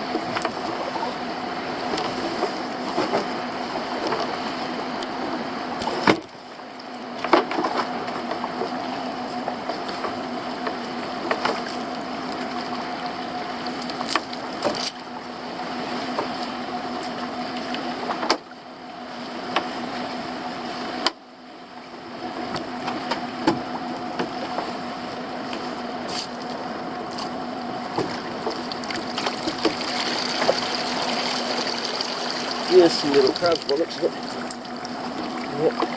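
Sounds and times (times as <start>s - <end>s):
knocks and clicks on boat: 0.0s - 0.8s, 1.8s - 4.4s, 5.8s - 12.8s, 13.6s - 15.1s, 16.1s - 18.5s, 19.5s - 19.8s, 21.0s - 21.2s, 22.3s - 24.8s, 26.5s - 30.8s
outboard motor running: 0.0s - 35.9s.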